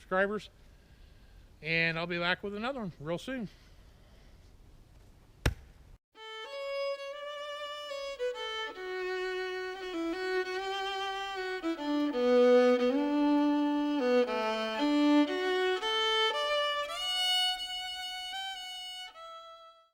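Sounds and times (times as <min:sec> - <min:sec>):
bowed fiddle melody: 0:06.2 - 0:19.9.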